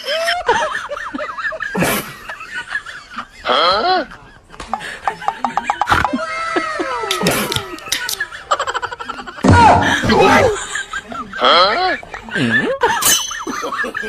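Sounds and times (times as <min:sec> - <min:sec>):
laughter: 0:00.0 - 0:14.0.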